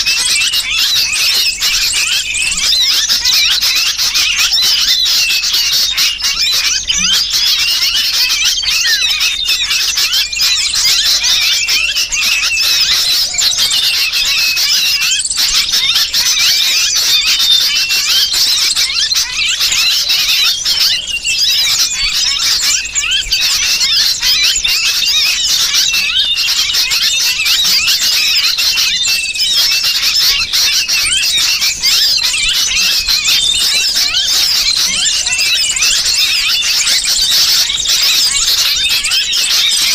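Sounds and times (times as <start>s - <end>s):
bird distress cries: 0.0s - 39.9s
small birds chirping and squealing: 0.0s - 39.9s.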